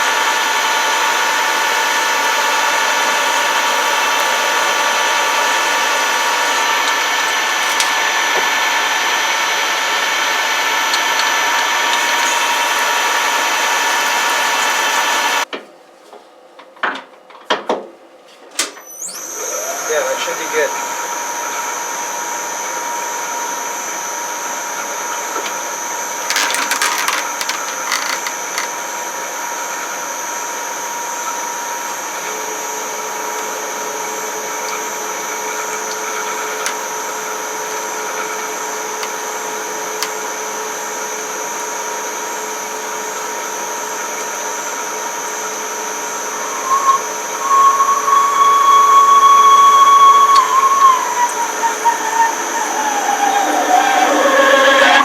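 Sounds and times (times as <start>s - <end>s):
machine tool drilling metal: 0.5s - 8.4s, 10.8s - 15.4s, 26.3s - 28.8s
drill bit squealing: 1.0s - 8.0s, 10.9s - 15.4s, 26.3s - 28.8s, 32.2s - 40.1s, 45.3s - 55.0s
clatter of clicks: 26.3s - 28.7s.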